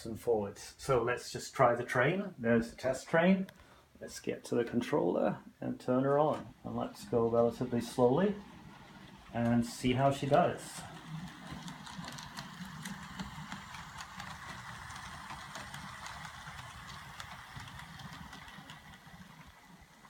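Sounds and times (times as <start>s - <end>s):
model train motor whir: 6.6s - 20.0s.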